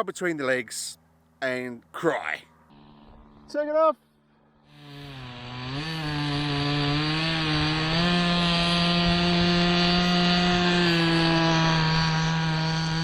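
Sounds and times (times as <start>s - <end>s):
model airplane engine buzzing: 1.9s - 13.0s.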